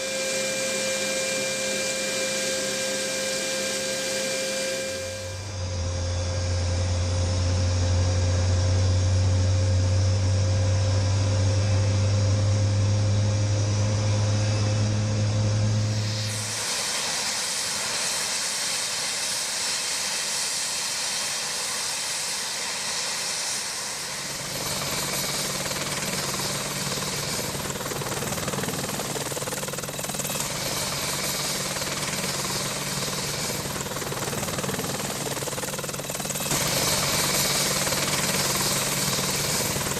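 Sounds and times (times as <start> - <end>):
helicopter engines and rotor: 0.0 - 39.9.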